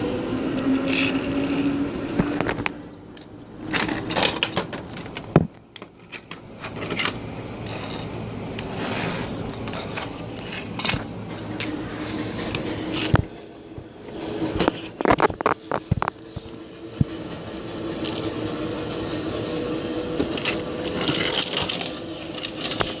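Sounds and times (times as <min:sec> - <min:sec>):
train rumble: 0:00.0 - 0:23.0
wheels clicking on track: 0:00.0 - 0:23.0
steady motor tone: 0:07.9 - 0:23.0.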